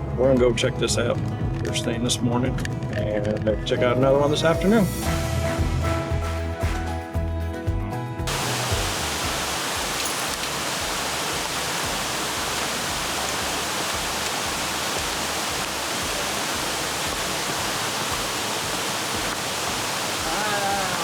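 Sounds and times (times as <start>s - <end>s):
waterfall roaring: 8.3s - 21.0s.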